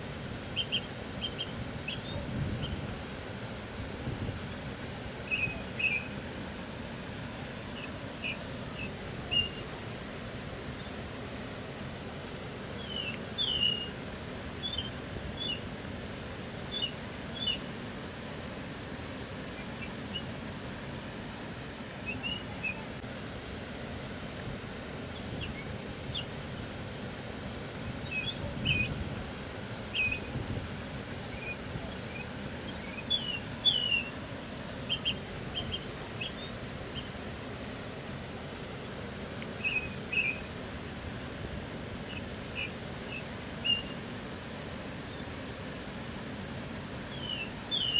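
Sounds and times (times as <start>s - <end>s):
low background hiss: 0.0s - 47.9s
bird chirps: 31.3s - 34.1s, 42.1s - 44.1s, 45.0s - 47.9s.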